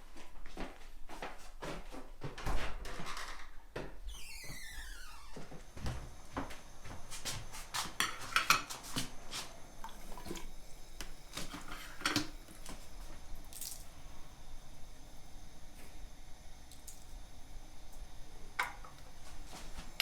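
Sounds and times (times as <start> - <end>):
dishes and cutlery clinking: 8.0 - 9.1.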